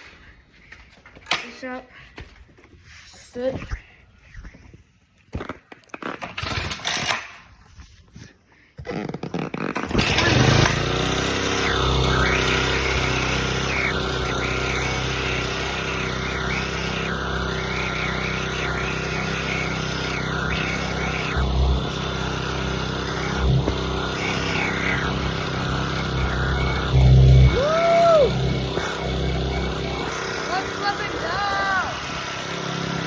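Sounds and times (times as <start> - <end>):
dirt bike engine running: 9.9 - 33.0.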